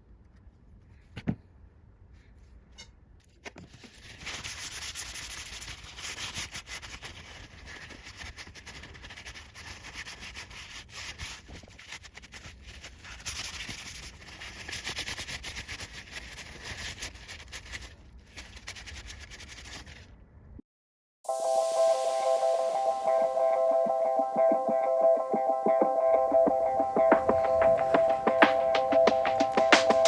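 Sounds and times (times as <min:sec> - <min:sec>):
hand sanding strokes: 0:04.1 - 0:11.5.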